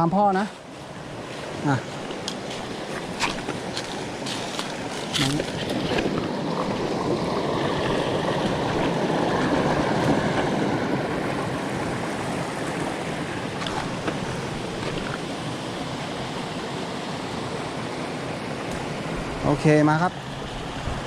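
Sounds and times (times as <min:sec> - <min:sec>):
stream tumbling over stones: 0:01.5 - 0:17.0.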